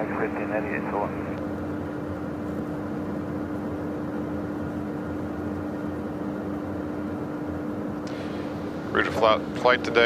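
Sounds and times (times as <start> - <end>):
jet cockpit airflow and engine noise: 0.0 - 10.0
steady hum: 0.0 - 10.0.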